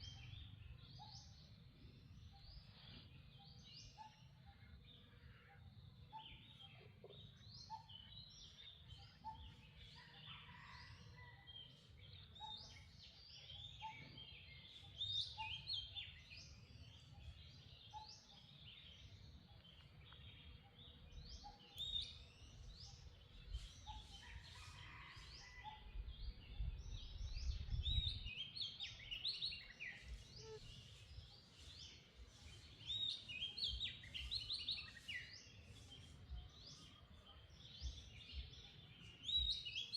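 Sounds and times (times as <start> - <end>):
birds chirping: 26.5 - 39.9.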